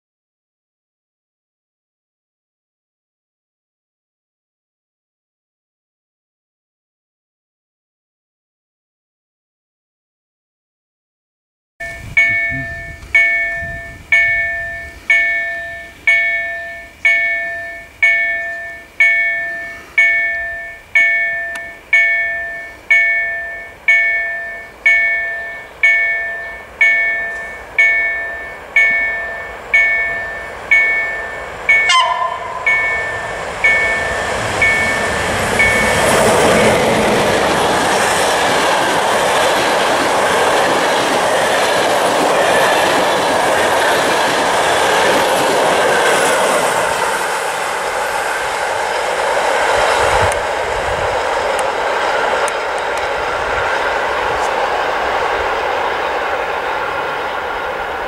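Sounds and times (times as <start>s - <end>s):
warning bell ringing: 11.8s - 37.0s
passenger train passing: 11.8s - 58.0s.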